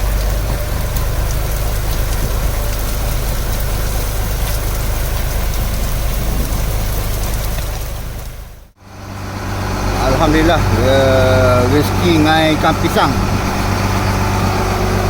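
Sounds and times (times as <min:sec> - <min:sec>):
boat engine idling: 0:00.0 - 0:15.0
light rain hissing: 0:00.0 - 0:15.0.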